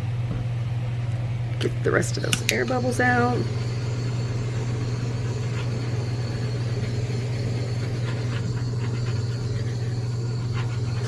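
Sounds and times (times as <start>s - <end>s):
electric motor humming: 1.9s - 11.0s.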